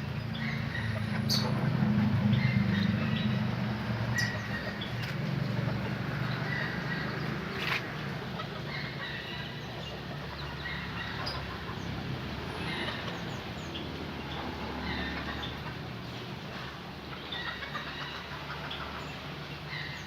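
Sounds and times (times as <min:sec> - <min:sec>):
canaries chirping: 0:00.1 - 0:15.8.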